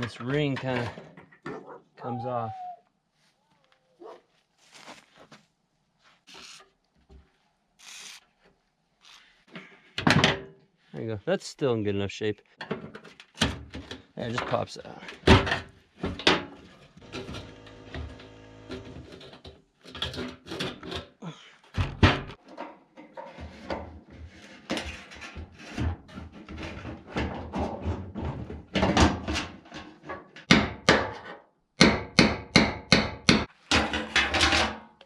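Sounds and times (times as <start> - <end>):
hard parts knocking and clattering: 0.0 - 1.6, 12.6 - 23.9, 32.7 - 35.0.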